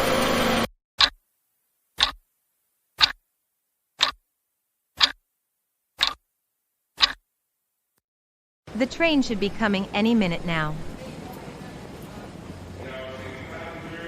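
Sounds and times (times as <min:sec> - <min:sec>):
clock ticking: 0:01.0 - 0:01.2, 0:02.0 - 0:02.2, 0:03.0 - 0:03.2, 0:04.0 - 0:04.2, 0:05.0 - 0:05.2, 0:06.0 - 0:06.2, 0:07.0 - 0:07.2.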